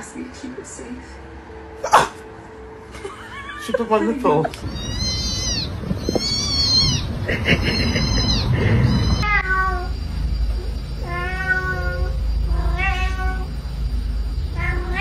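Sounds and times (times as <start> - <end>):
cats meowing: 3.4 - 13.6, 14.5 - 15.0.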